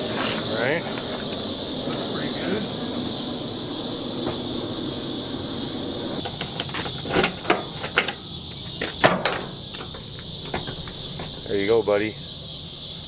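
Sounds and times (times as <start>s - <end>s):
insects buzzing: 0.0s - 13.0s
sharp clicks and knocks: 6.2s - 11.5s.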